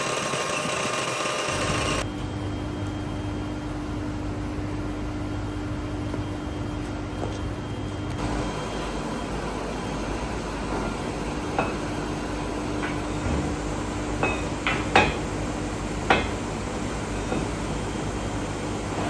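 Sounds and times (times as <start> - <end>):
workshop machinery humming: 0.0 - 19.0
ringing metal clanks: 14.2 - 15.4.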